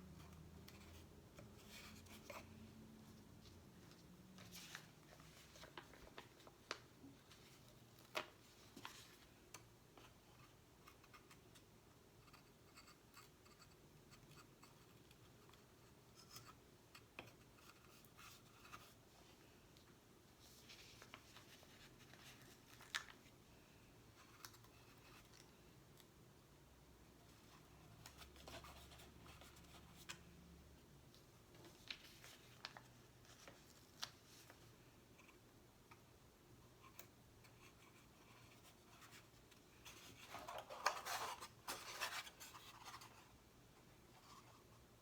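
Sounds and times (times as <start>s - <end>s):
crinkling: 3.1s - 9.4s, 19.8s - 23.4s, 31.1s - 34.7s.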